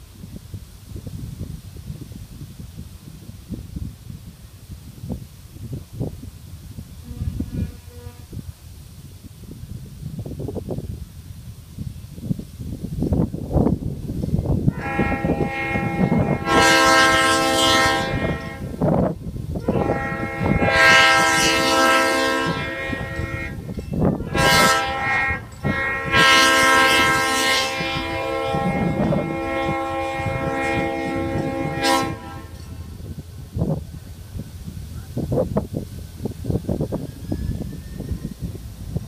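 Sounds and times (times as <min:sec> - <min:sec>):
rumble of locomotive and train: 0:00.0 - 0:39.0
locomotive air horn blasts: 0:07.0 - 0:08.6, 0:14.7 - 0:33.8.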